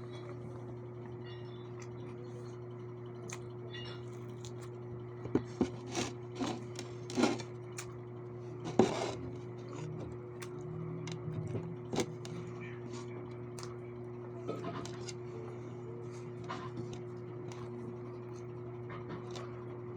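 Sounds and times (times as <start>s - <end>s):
steady low hum: 0.0s - 19.9s
chewing smacks: 3.2s - 4.8s, 10.4s - 10.7s, 12.2s - 13.8s.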